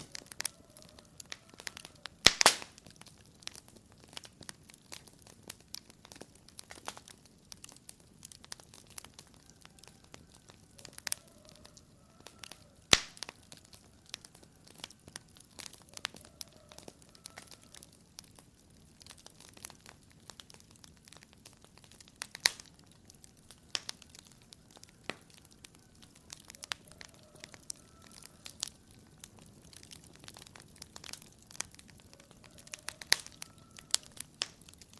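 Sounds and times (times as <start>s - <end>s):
wood fire crackling: 0.0s - 34.9s
loud sharp fire pops: 1.3s - 7.7s, 12.9s - 13.4s, 19.2s - 26.8s.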